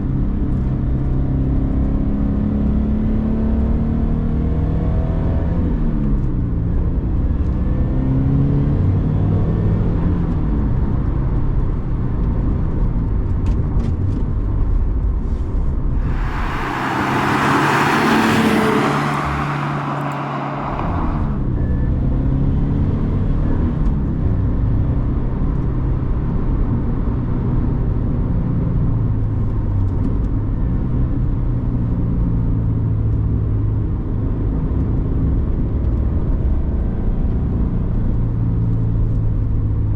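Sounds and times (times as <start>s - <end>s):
car engine revving through gears: 16.0s - 21.4s.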